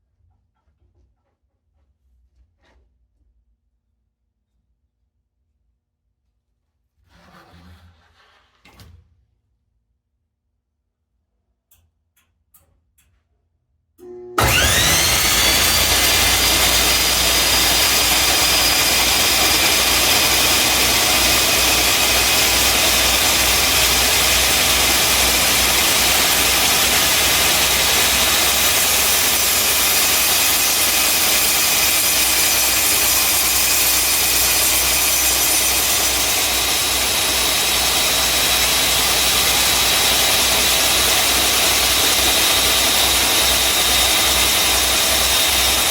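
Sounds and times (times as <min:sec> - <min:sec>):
table saw motor running: 0:14.4 - 0:45.9.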